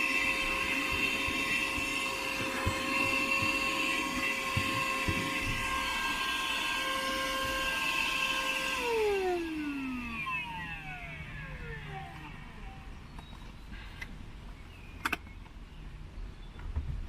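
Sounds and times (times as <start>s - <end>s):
handheld vacuum motor whine: 0.0s - 14.2s.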